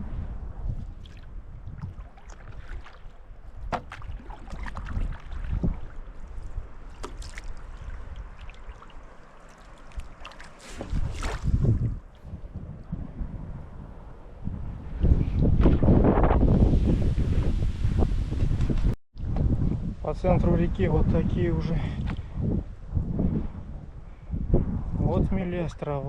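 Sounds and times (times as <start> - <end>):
wind buffeting microphone: 0.0 - 26.0
paddle strokes in water: 0.9 - 12.2.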